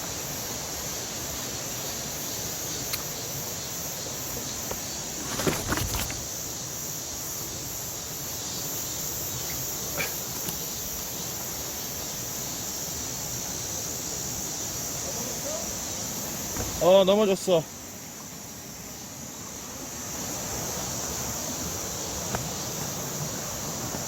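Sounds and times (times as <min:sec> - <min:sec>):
insect drone: 0:00.0 - 0:24.0
mountain stream rushing: 0:08.9 - 0:24.0
brief knocks: 0:16.5 - 0:16.8.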